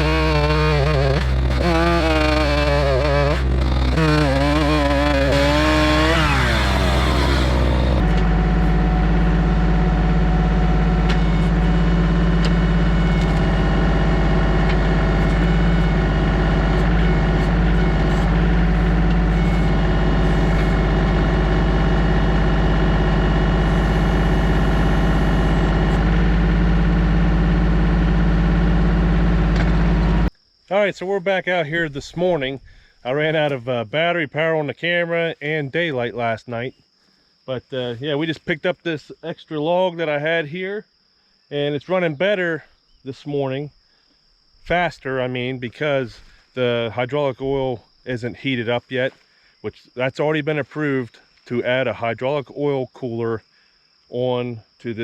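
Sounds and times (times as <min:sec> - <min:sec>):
tractor diesel engine running: 0:00.0 - 0:30.3.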